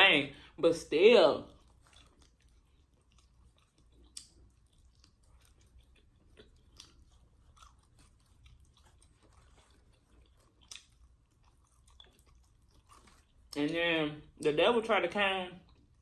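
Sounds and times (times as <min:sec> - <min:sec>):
faint chewing: 0:01.4 - 0:13.7, 0:15.6 - 0:16.0.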